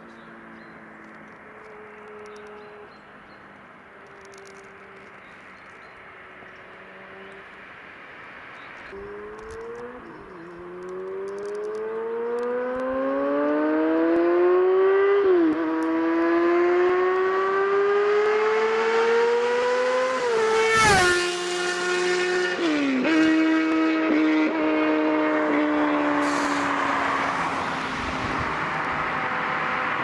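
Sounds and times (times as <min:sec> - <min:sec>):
motorcycle engine accelerating: 0:00.2 - 0:03.0, 0:08.9 - 0:30.0.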